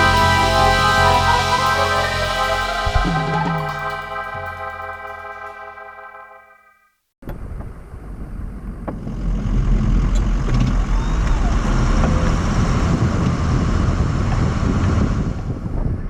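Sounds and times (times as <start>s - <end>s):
diesel engine running: 0.0s - 5.1s.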